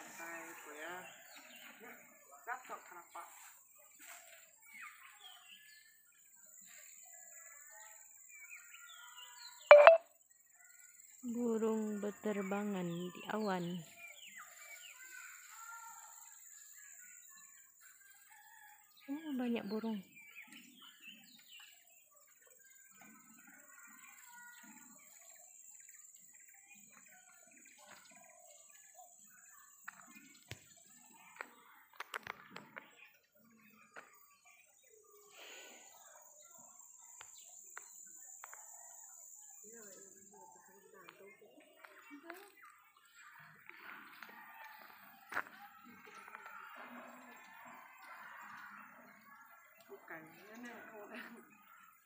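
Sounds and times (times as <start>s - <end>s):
sharp click: 9.7s - 10.0s.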